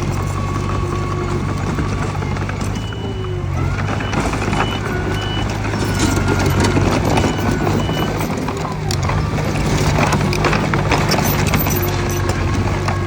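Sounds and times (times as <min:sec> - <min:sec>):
diesel engines droning: 0:00.0 - 0:13.0
metal clanking: 0:01.8 - 0:13.0
reversing alarm beeps: 0:02.6 - 0:10.2.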